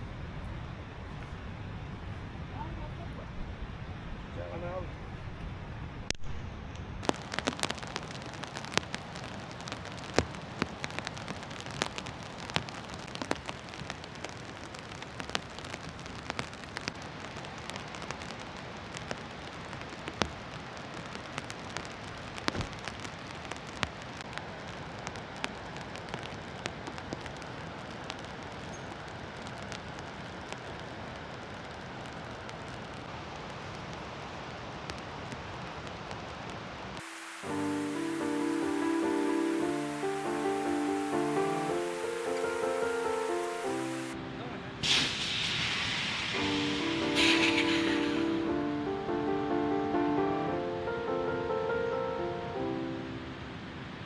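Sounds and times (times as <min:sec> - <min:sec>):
raindrops ticking on a surface: 0:07.0 - 0:50.0.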